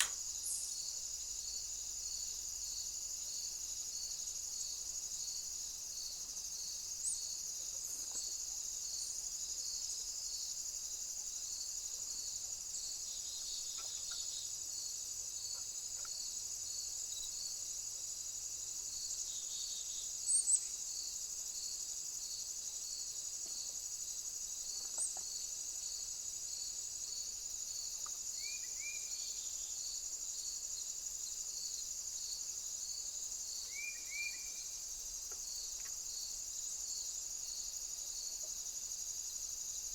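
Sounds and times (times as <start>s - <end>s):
bird chirps: 0.0s - 0.8s
insects chorus: 0.0s - 39.9s.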